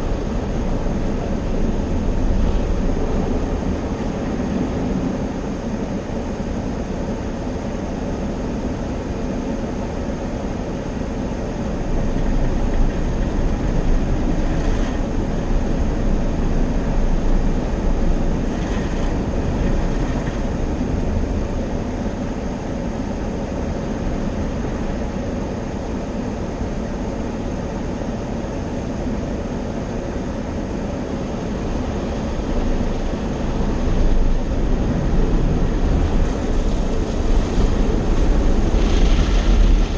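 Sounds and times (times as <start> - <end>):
car wash equipment rushing: 32.1 - 39.9.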